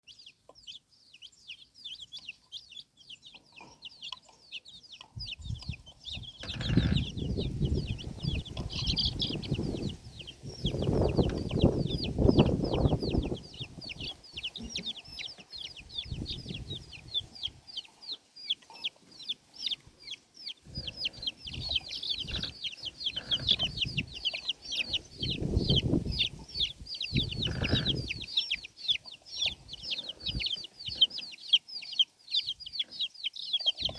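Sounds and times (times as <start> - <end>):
chicks peeping: 0.0 - 33.9.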